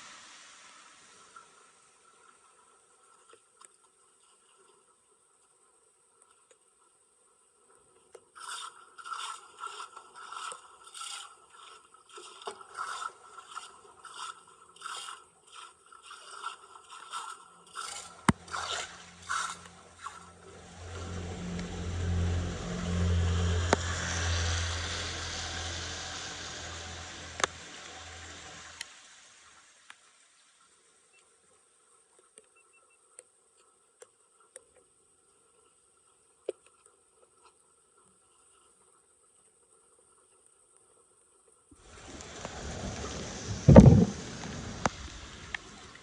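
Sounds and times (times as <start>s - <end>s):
rushing noise with low hum: 18.3s - 29.0s, 41.8s - 46.0s.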